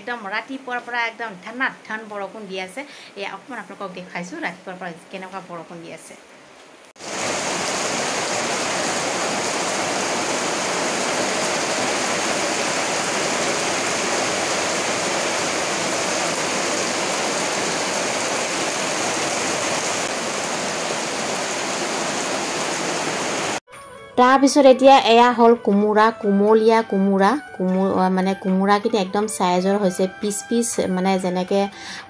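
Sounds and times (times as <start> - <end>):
heavy rain on pavement: 7.0 - 23.6.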